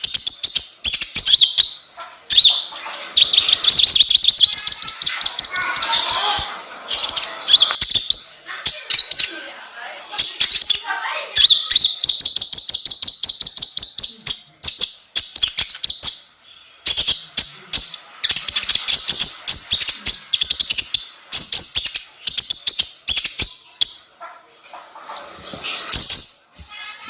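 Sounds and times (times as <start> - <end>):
sunbird chattering trills: 1.2 - 9.4.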